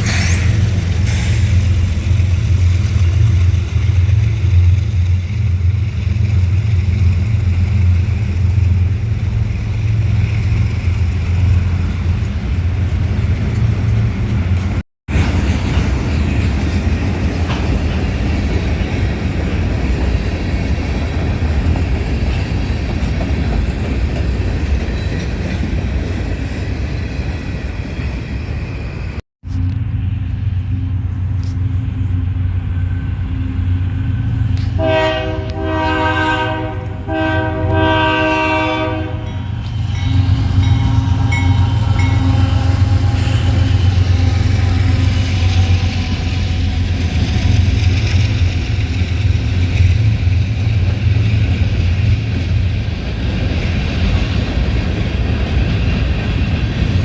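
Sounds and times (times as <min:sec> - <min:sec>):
diesel locomotive engine: 0:00.0 - 0:57.0
train rumble: 0:00.0 - 0:57.0
locomotive horn blasts: 0:34.6 - 0:46.2.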